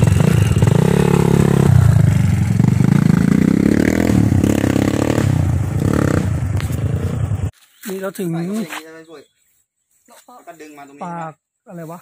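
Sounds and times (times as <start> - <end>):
motorcycle engine accelerating: 0.0 - 7.5.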